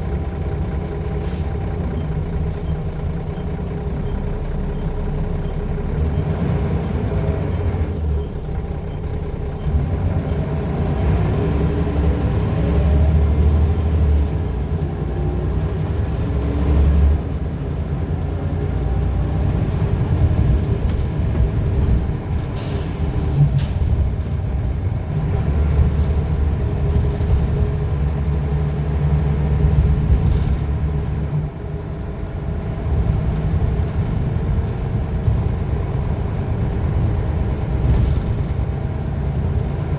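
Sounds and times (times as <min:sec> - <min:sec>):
bus diesel engine running: 0:00.0 - 0:39.9
air brakes hissing: 0:01.2 - 0:01.6, 0:22.6 - 0:24.1.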